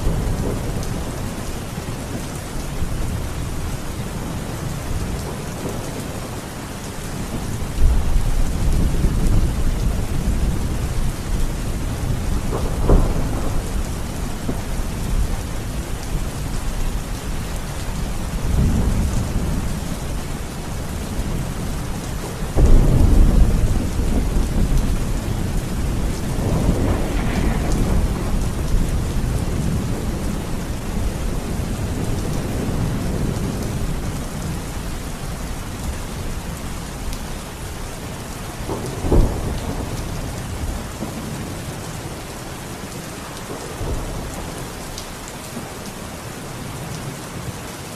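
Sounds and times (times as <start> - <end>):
steady rain falling: 0.0 - 47.9
rolling thunder: 7.3 - 34.7, 38.6 - 41.8
sharp thunder crack: 25.8 - 30.2.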